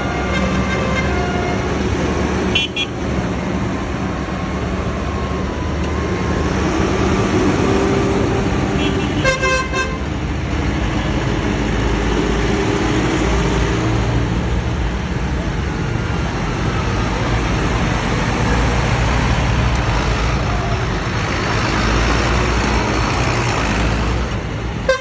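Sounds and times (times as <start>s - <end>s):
high double horn toot: 0.0s - 1.8s, 8.6s - 10.1s
tractor engines passing: 0.0s - 25.0s.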